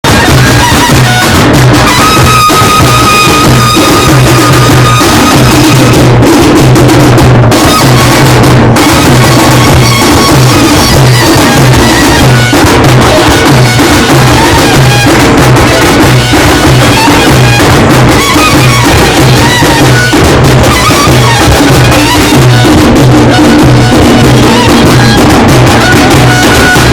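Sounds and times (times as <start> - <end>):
held high tone: 0.0 - 6.2, 7.5 - 26.9
loud continuous drumming: 0.0 - 26.9.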